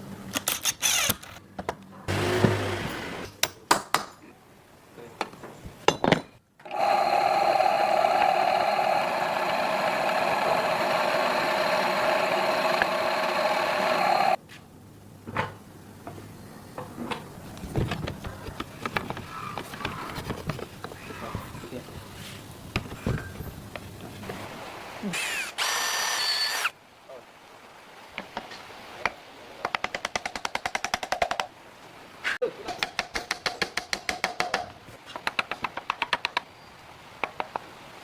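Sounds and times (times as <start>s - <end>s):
power tool motor running: 2.1s - 3.3s, 6.6s - 14.4s, 25.2s - 26.7s.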